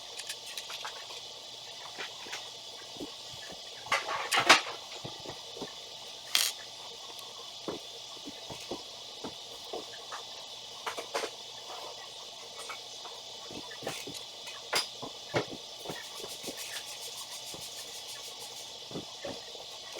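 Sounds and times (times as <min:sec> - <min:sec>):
building pieces clicking and rattling: 0:06.3 - 0:06.6.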